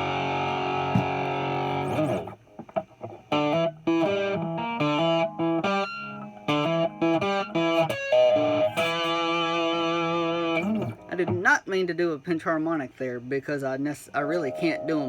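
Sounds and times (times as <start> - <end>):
distorted electric guitar riff: 0.0 - 11.6.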